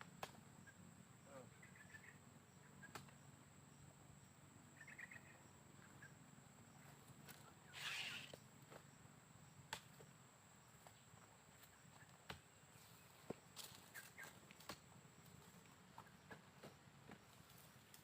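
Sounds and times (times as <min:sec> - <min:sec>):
high insect drone: 0:00.0 - 0:18.0
faint bird chirps: 0:00.6 - 0:08.5, 0:13.8 - 0:14.4.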